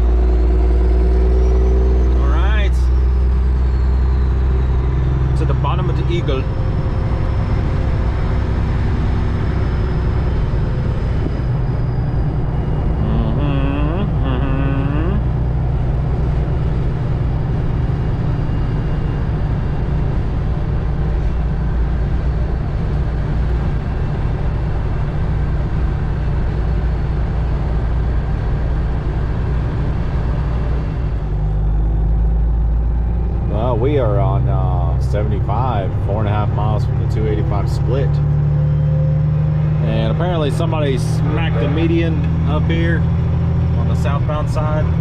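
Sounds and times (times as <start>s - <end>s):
truck diesel engine rumble: 0.0s - 45.0s
wavering voice-like sound: 12.9s - 15.4s.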